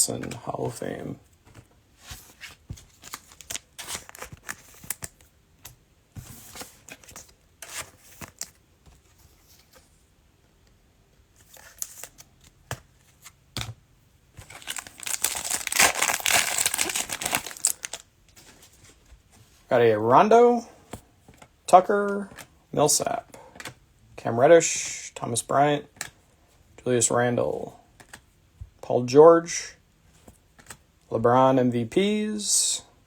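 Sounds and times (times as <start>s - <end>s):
cards rustling: 1.5s - 5.2s, 11.4s - 13.4s, 14.4s - 18.9s
plastic wrapper tearing and crinkling: 14.4s - 18.0s.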